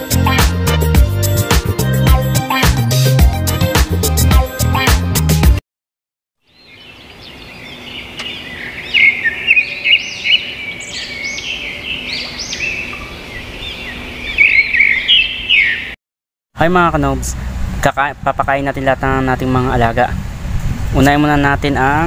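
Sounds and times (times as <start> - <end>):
birds chirping: 6.4 - 16.0.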